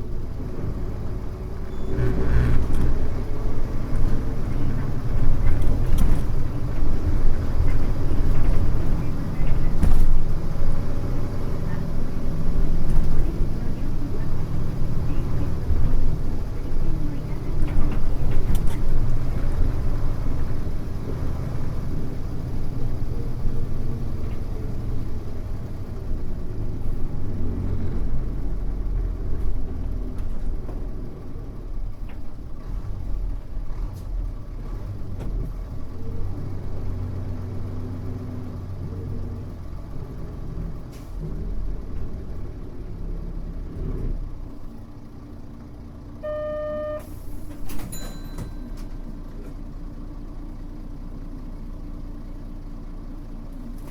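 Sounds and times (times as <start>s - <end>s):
bus diesel engine: 0.0s - 53.9s
electronic beep: 46.2s - 47.1s.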